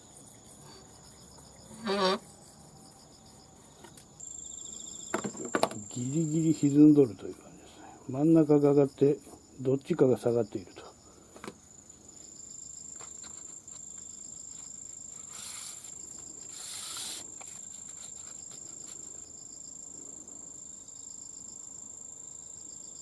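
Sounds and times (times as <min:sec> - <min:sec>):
high-pitched insect trill: 0:00.0 - 0:23.0
short rustling hisses: 0:15.1 - 0:19.0.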